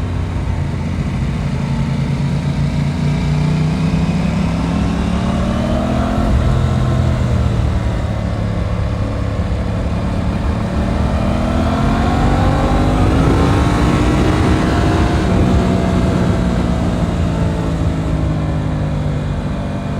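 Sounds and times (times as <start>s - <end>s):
low wind rumble: 0.0s - 19.9s
motorcycle engine revving: 0.0s - 19.9s.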